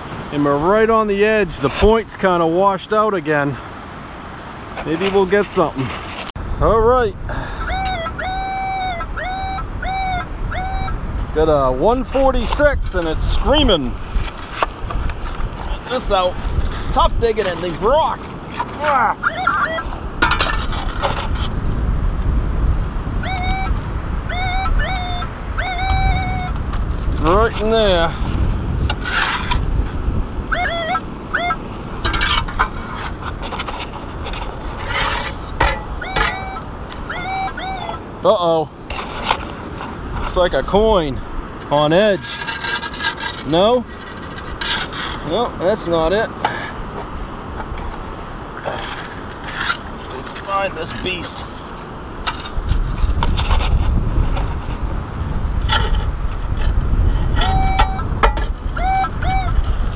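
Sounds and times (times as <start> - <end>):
shovel digging in wet gravel: 14.0 - 19.1, 28.9 - 29.6, 41.7 - 45.3
metal detector rising beeps: 36.0 - 38.0, 57.4 - 58.0.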